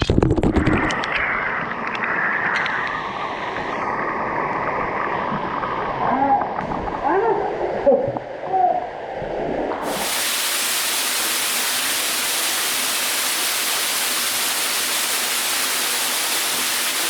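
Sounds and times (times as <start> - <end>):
waterfall rushing: 9.8 - 17.0.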